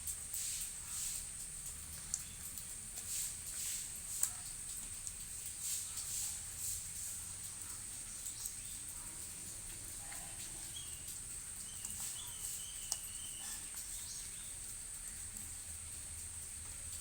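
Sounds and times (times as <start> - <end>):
insect chirring: 8.1 - 17.0
faint chirp: 10.1 - 15.3.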